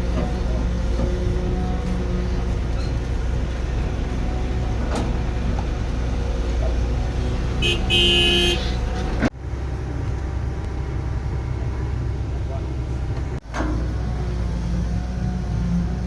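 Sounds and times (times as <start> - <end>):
heavy diesel machinery running: 0.0 - 16.0
vehicle horn: 7.5 - 9.0.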